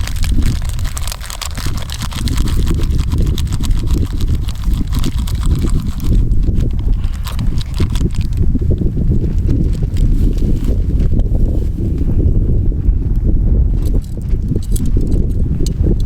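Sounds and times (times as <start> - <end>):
campfire crackling: 0.0 - 8.1
wind on microphone: 0.0 - 16.0.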